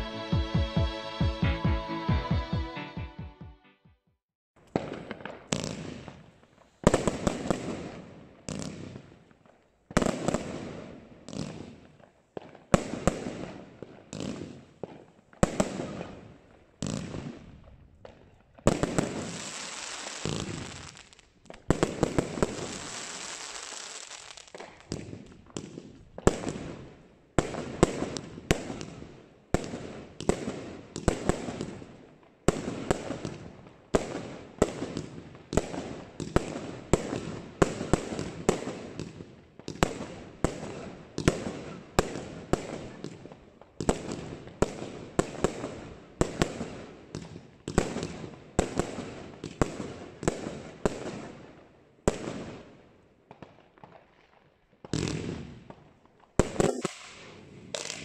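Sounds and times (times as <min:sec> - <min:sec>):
firework cake firing sharp shots: 0:04.7 - 0:06.2, 0:06.9 - 0:09.1, 0:18.7 - 0:26.8, 0:27.4 - 0:31.9, 0:54.9 - 0:55.8, 0:56.4 - 0:58.0.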